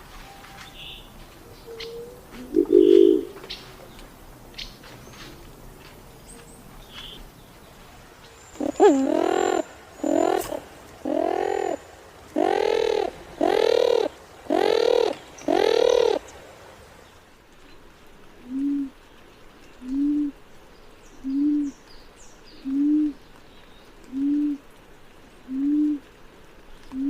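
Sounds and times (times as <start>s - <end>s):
bird giving harsh calls: 1.8s - 3.4s, 8.6s - 16.3s.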